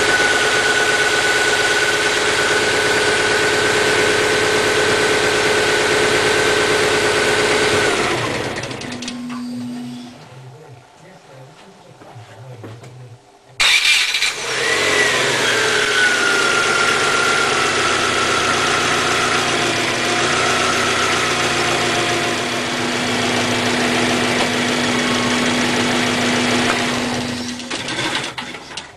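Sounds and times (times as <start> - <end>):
car engine running: 0.0 - 10.8, 13.6 - 28.7
steady low hum: 8.0 - 13.6
whine falling in pitch: 8.9 - 10.8.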